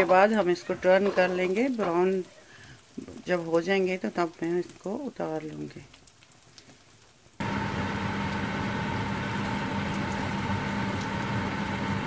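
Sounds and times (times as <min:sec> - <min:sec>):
patties sizzling in oil: 0:00.0 - 0:12.0
mechanical hum: 0:07.4 - 0:12.0.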